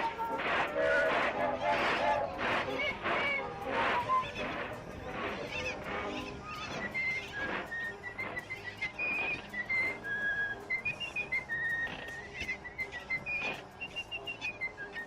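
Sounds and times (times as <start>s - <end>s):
person whistling a tune: 3.8s - 4.4s, 6.5s - 15.0s.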